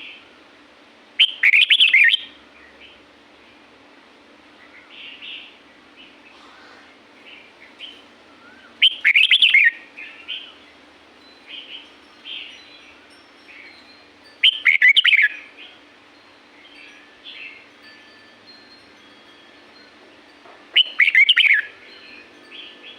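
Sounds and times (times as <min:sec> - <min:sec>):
bird warbling song: 0:01.2 - 0:03.0, 0:04.6 - 0:10.8, 0:11.4 - 0:15.8, 0:20.7 - 0:22.9
soft bird chirps: 0:04.6 - 0:10.8, 0:11.4 - 0:15.8, 0:20.7 - 0:22.9.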